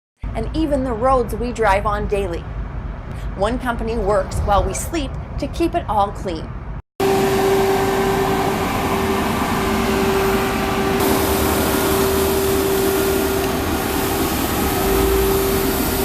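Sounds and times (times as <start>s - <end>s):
street sweeper truck droning: 7.0s - 16.0s.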